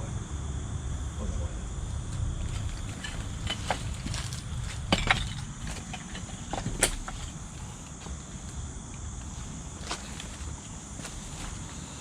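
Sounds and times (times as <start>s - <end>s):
high insect drone: 0.0s - 12.0s
footsteps on debris: 2.4s - 8.5s, 9.4s - 12.0s.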